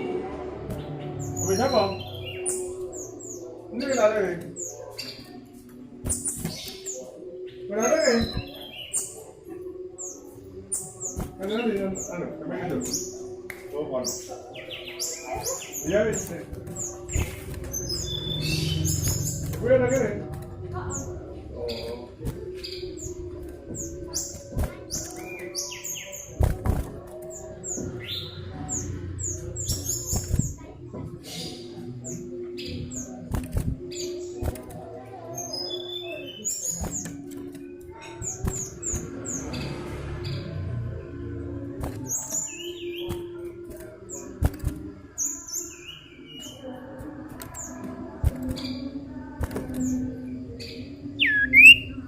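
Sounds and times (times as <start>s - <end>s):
bird chirping high falling notes: 51.2s - 52.0s.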